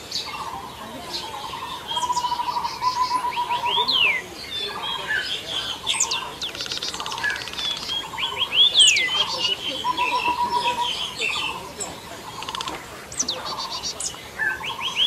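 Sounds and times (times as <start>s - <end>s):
birds repeating low notes: 0.0s - 15.0s
buzzy rattling bird trill: 5.6s - 11.6s, 12.2s - 14.1s.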